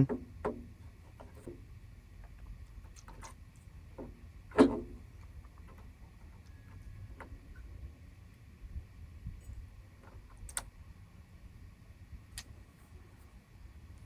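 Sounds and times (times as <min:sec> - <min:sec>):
small clicks and handling sounds: 0:02.2 - 0:04.1, 0:10.0 - 0:10.7.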